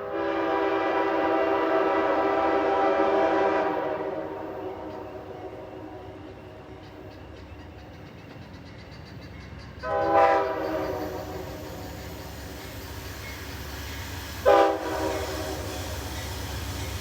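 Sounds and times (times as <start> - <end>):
locomotive air horn blast: 0.0 - 6.2, 9.8 - 11.9, 14.4 - 16.8
rumble of moving train: 0.0 - 17.0
wheels clicking over rail joints: 6.6 - 17.0.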